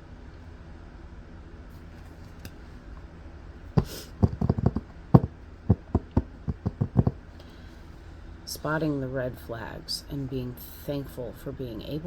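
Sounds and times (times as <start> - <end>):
taps and knocks on tabletop: 3.8 - 7.2.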